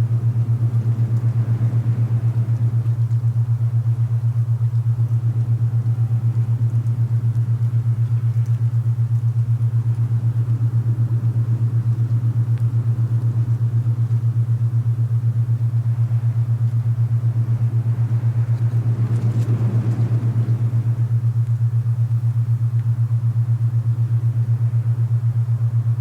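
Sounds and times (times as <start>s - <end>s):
soft wind rush: 0.0s - 4.8s, 15.7s - 22.1s
low pulsing hum: 0.0s - 26.0s.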